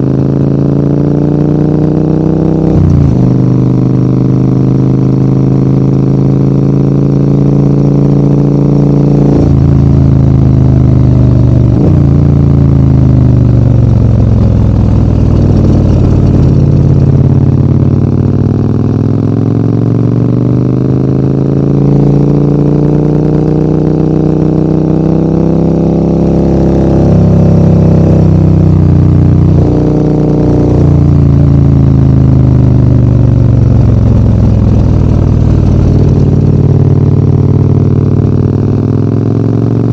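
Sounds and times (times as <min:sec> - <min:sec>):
motorcycle engine revving uphill: 0:00.0 - 0:39.9.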